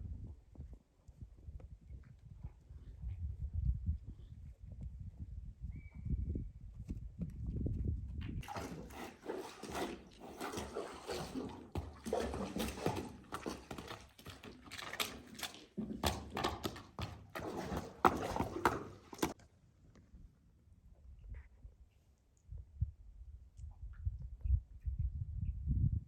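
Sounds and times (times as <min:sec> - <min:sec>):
horses scuffing and knocking: 0:08.2 - 0:19.4.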